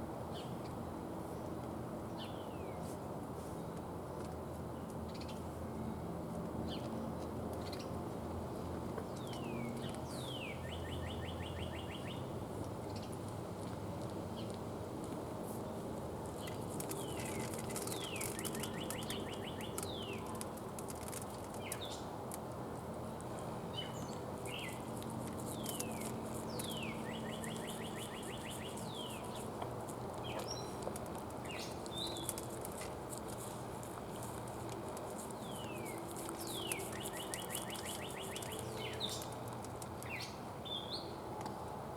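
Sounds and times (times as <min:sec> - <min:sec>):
birds singing whistles and trills: 0:17.0 - 0:20.2, 0:25.5 - 0:29.4, 0:35.4 - 0:39.3.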